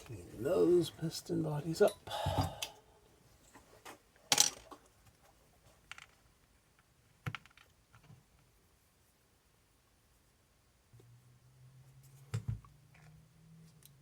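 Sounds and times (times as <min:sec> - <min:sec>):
small parts clicking and knocking: 0:04.3 - 0:04.9, 0:05.8 - 0:08.2.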